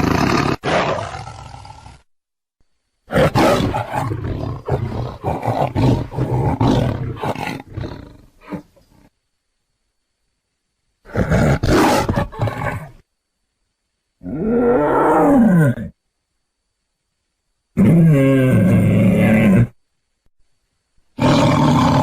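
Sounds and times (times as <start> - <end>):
big cat roaring: 0.0 - 2.0, 3.1 - 8.7, 14.2 - 16.0, 17.8 - 19.8, 21.2 - 22.0.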